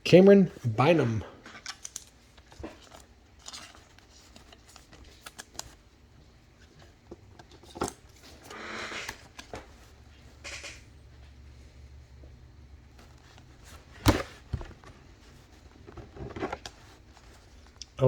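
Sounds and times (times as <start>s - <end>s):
cards clicking: 1.5s - 5.8s.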